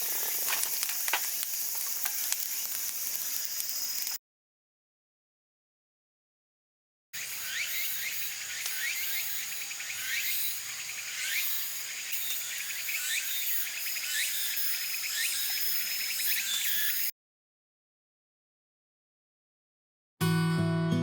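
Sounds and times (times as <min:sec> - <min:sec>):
insects chirping and buzzing: 0:00.0 - 0:04.2, 0:07.2 - 0:17.1.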